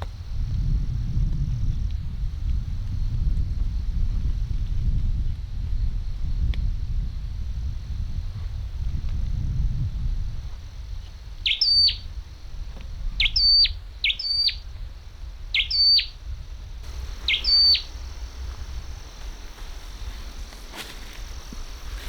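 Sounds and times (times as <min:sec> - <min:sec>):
low steady rumble: 0:00.0 - 0:22.0
bird calling: 0:11.0 - 0:12.4, 0:13.0 - 0:16.2, 0:16.8 - 0:22.0.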